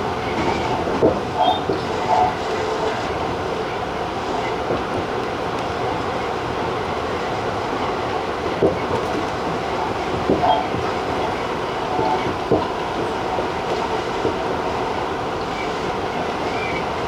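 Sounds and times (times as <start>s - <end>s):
train rolling rumble: 0.0s - 17.0s
wheels clacking over rail joints: 0.1s - 17.0s.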